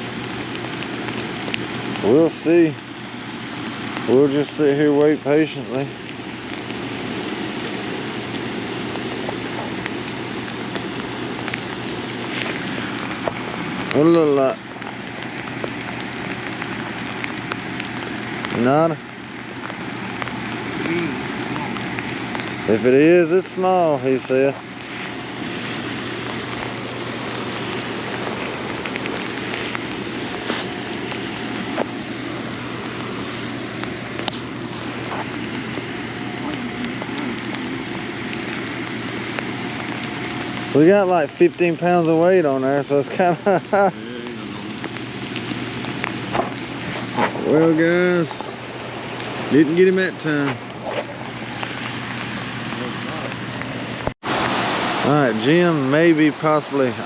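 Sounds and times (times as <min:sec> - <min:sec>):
low hum: 0:00.0 - 0:57.0
steady rain falling: 0:00.0 - 0:57.0
rushing river water: 0:50.2 - 0:57.0.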